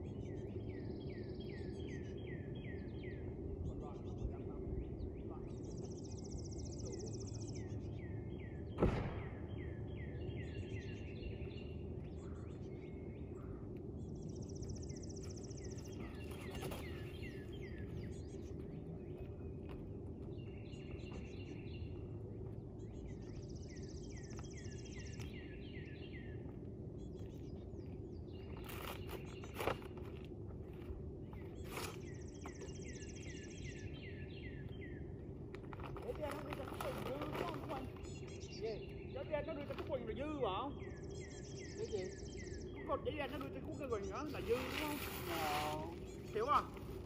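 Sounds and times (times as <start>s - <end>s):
bird trill: 0.0s - 19.6s, 30.7s - 47.0s
low outdoor rumble: 0.0s - 47.0s
songbirds singing: 0.0s - 47.0s
sharp knock: 8.8s - 9.4s.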